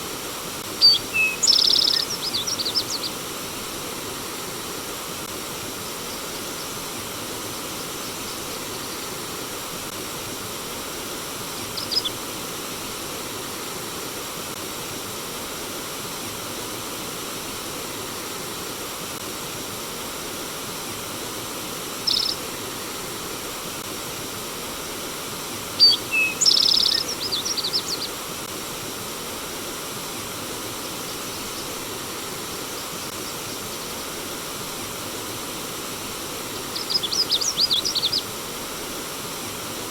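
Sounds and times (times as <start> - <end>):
stream water flowing: 0.0 - 39.9
songbird chirping: 0.8 - 3.2, 11.6 - 12.2, 22.1 - 22.4, 25.8 - 28.2, 36.6 - 38.3.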